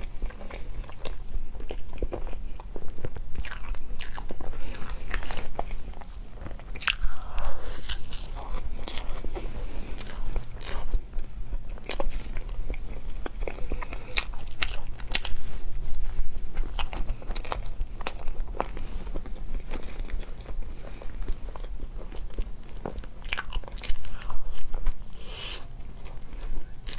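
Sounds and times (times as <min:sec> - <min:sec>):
chewing and biting soft food: 0:00.0 - 0:26.9.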